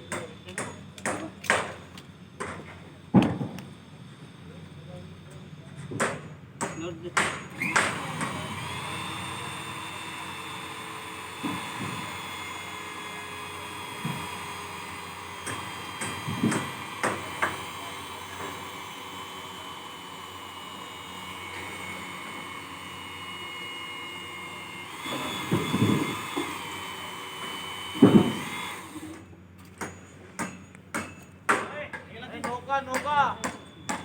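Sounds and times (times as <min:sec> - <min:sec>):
motor whining: 0:07.4 - 0:29.8.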